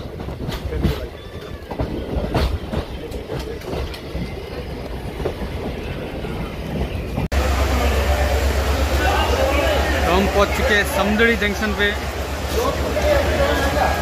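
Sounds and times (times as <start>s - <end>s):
wheels clicking over rail joints: 0.0s - 7.3s
train coach rumbling: 0.0s - 14.0s.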